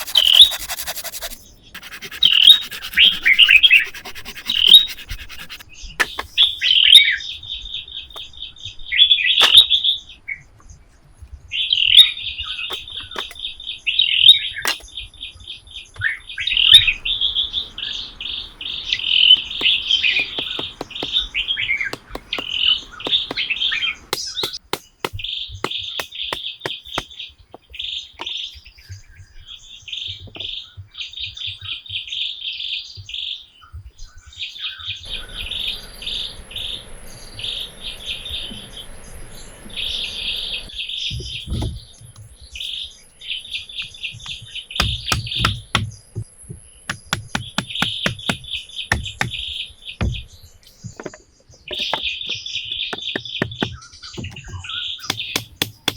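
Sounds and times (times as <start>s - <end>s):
birds chirping: 0.0s - 10.5s, 11.5s - 55.9s
sharp clicks and knocks: 19.4s - 21.3s, 44.2s - 49.4s.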